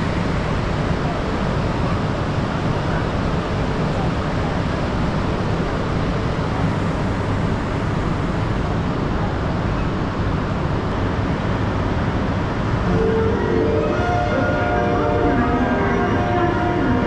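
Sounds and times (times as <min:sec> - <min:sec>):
train rushing rumble: 0:00.0 - 0:17.0.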